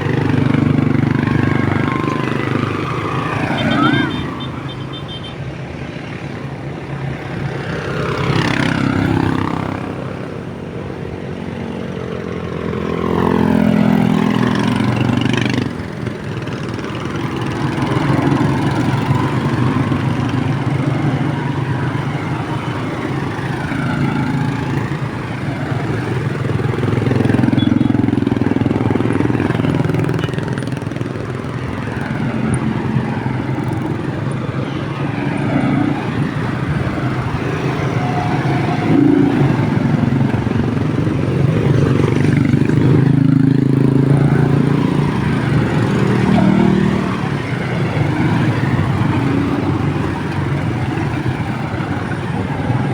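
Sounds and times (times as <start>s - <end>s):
motorcycles riding past: 0.0s - 52.9s.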